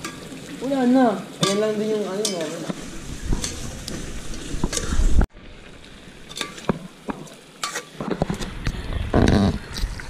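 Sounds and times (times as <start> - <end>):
metal ladle clinking against pot: 1.4 - 2.6.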